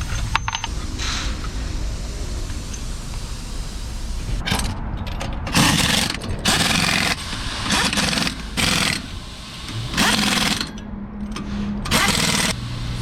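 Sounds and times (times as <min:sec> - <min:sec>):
pneumatic impact wrench bursts: 0:05.5 - 0:10.8, 0:11.9 - 0:13.0.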